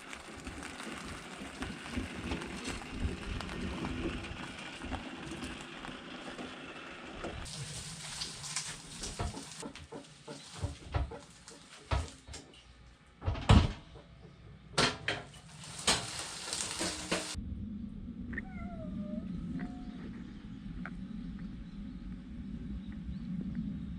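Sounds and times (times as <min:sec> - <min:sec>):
knocks and clatter: 0:09.0 - 0:12.6, 0:13.2 - 0:17.4
cat meowing: 0:18.3 - 0:20.0.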